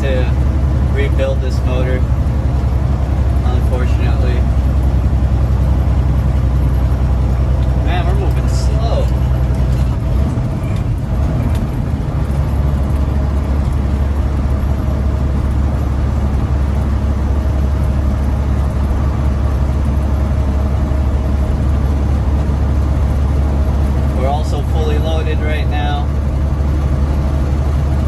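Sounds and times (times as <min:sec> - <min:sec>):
diesel truck engine droning: 0:00.0 - 0:28.0.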